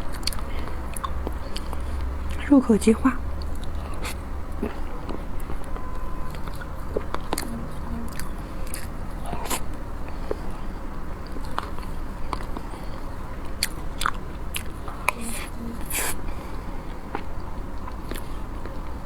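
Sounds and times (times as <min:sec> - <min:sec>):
person chewing: 0:00.1 - 0:02.4, 0:03.4 - 0:10.4, 0:11.2 - 0:16.4
wet mouth clicks and smacks: 0:00.1 - 0:02.4
steady low hum: 0:07.0 - 0:17.2.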